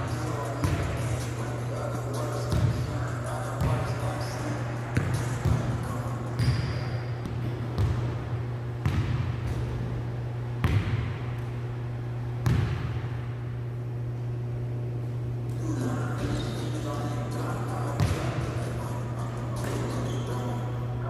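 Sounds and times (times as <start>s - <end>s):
steady low hum: 0.0s - 21.0s
basketball bouncing on gym floor: 0.6s - 1.0s, 2.5s - 2.8s, 3.6s - 3.9s, 5.0s - 10.0s, 10.6s - 11.5s, 12.4s - 13.3s, 18.0s - 18.4s.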